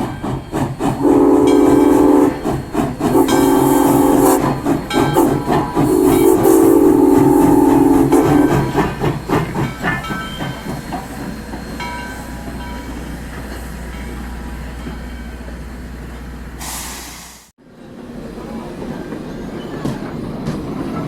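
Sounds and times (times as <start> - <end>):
steam hiss: 0.0 - 11.3, 16.6 - 17.5
steam train chuffing: 0.0 - 17.5
steam train whistle: 1.0 - 8.8.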